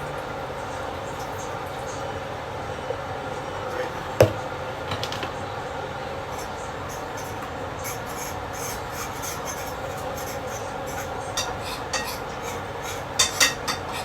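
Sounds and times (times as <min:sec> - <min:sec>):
utensils and dishes clinking: 0:06.4 - 0:14.0.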